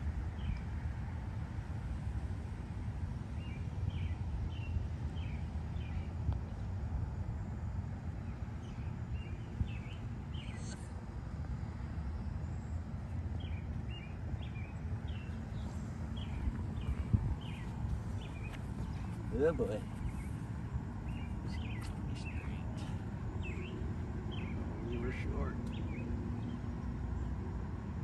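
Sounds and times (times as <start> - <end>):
steady low rumble: 0.0 - 28.0
bird chirping: 3.4 - 6.1, 8.3 - 10.9, 12.2 - 27.3.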